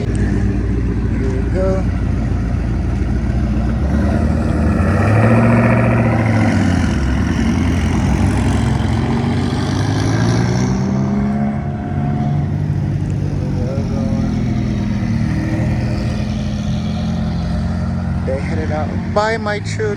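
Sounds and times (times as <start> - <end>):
sports car engines revving: 0.0 - 19.9.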